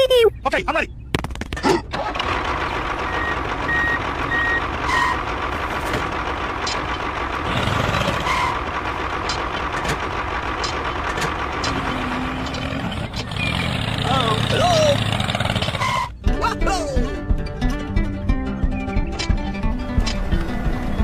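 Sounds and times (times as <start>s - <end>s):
engine hum: 0.0s - 16.4s, 17.1s - 21.0s
vehicle reversing alarm beeping: 3.0s - 5.3s.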